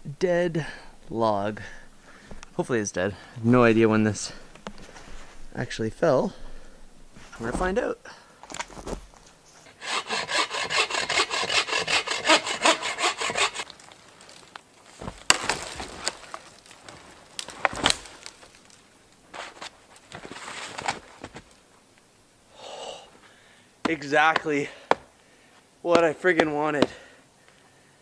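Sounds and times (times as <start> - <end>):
wood scraping: 6.3 - 7.9, 8.5 - 21.6, 25.9 - 27.0
wood cracking: 8.5 - 21.6
hand saw cutting log: 9.7 - 13.7, 25.9 - 27.0.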